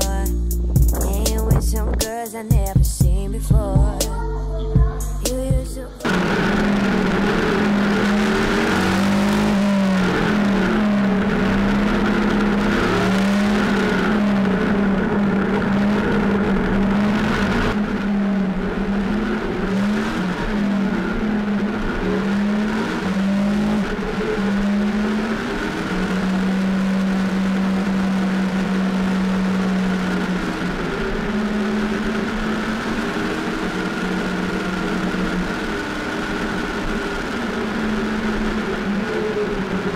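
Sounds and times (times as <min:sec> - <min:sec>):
motorcycle engine running: 0:00.0 - 0:39.9
wind and road noise: 0:00.6 - 0:02.1, 0:06.0 - 0:39.9.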